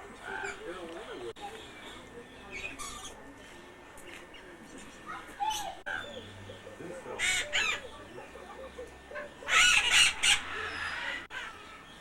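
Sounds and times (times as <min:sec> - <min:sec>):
bird squawks: 0:07.2 - 0:07.9, 0:09.5 - 0:11.6.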